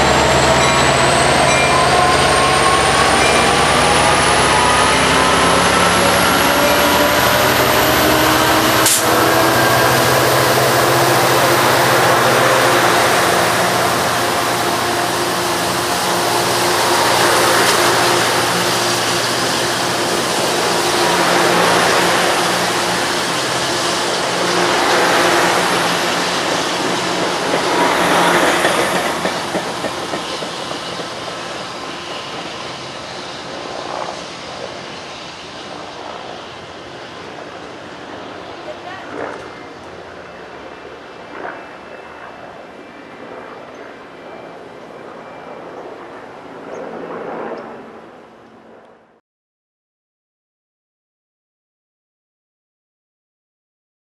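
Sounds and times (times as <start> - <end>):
train wheels rumbling on rails: 0.0 - 40.7
diesel locomotive engine passing: 0.0 - 49.1.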